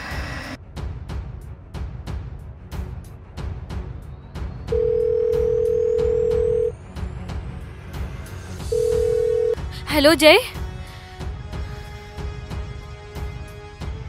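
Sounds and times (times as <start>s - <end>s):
tense background music: 0.0s - 14.0s
telephone ringback tone: 4.8s - 6.7s, 8.7s - 9.6s.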